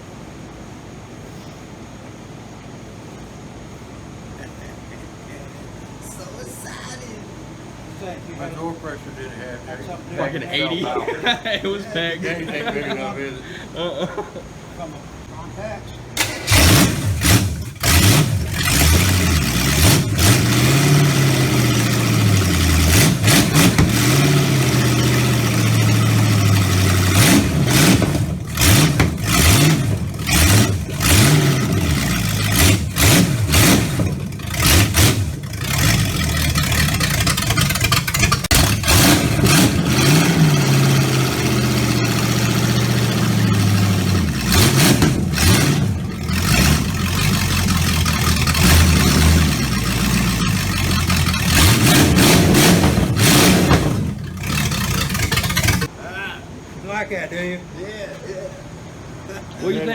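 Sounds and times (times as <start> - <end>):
race car engine revving: 16.2 - 55.9.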